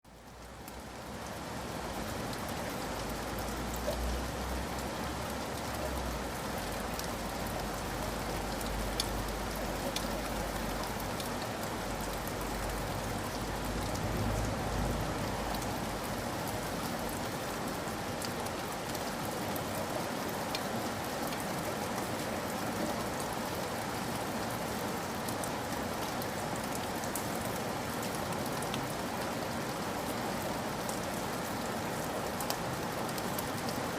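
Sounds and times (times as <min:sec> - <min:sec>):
raindrops ticking: 0:00.1 - 0:22.0
steady rain hiss: 0:00.1 - 0:33.9.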